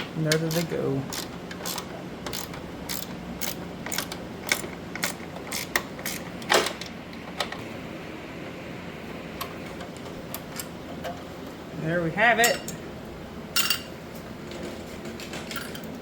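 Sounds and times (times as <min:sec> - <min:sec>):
steady low hum: 0:00.0 - 0:16.0
hand tools clicking on metal: 0:00.3 - 0:06.2.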